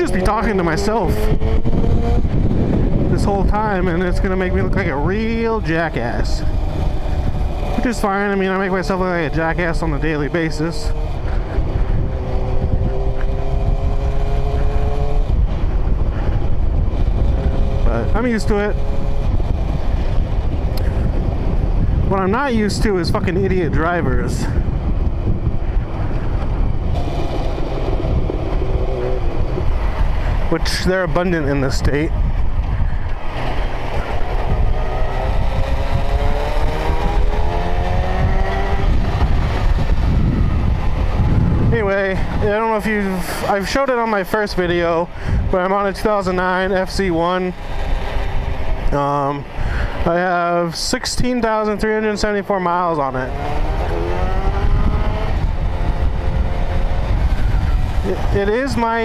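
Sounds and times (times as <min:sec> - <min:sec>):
motorcycle engine running: 0:00.0 - 0:31.6, 0:32.2 - 0:43.4, 0:53.2 - 0:59.0
wind rumble on microphone: 0:00.0 - 0:59.0.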